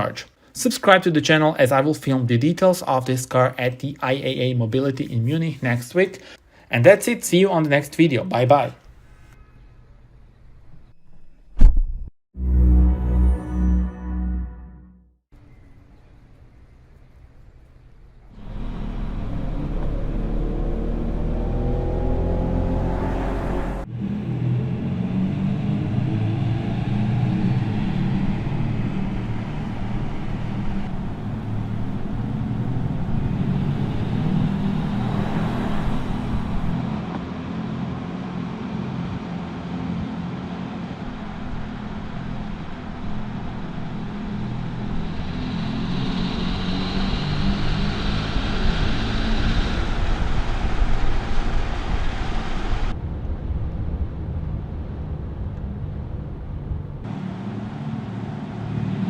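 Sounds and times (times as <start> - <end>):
road noise: 15.3 - 59.0
electric car hum: 15.4 - 59.0.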